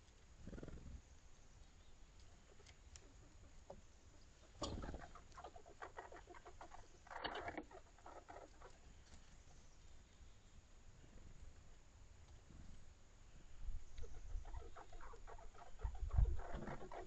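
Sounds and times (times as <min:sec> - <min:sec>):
small animals scratching and rustling: 0:04.3 - 0:09.5, 0:14.0 - 0:17.0.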